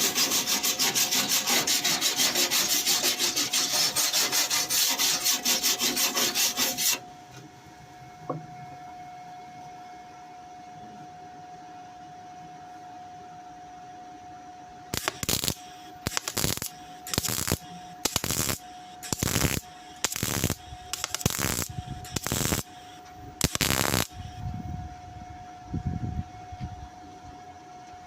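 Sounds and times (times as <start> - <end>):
crackling stitch welds: 14.9 - 24.4
welds popping: 15.0 - 22.6.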